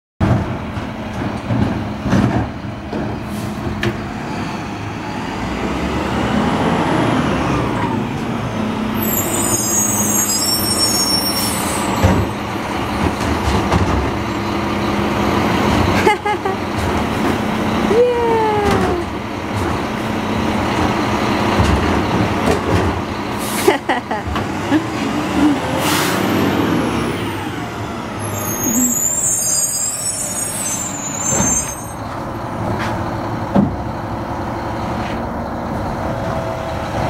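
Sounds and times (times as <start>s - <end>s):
garbage truck running: 0.2s - 37.0s
short falling squeal: 9.0s - 12.5s, 28.1s - 32.1s.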